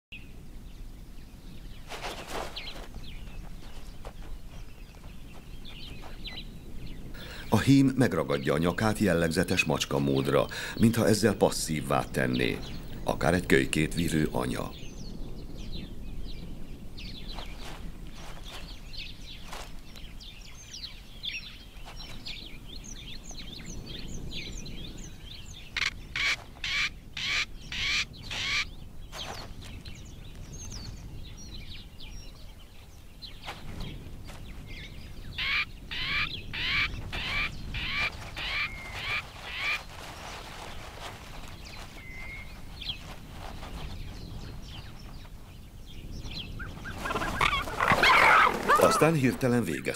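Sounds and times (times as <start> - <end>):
loud repeated bird call: 25.6 - 29.5, 35.3 - 40.2, 46.6 - 49.3.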